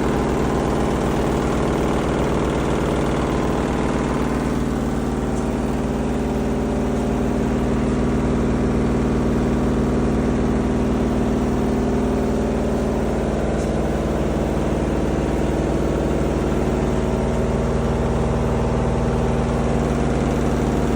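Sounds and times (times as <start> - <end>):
washing machine drone and vibration: 0.0 - 20.9.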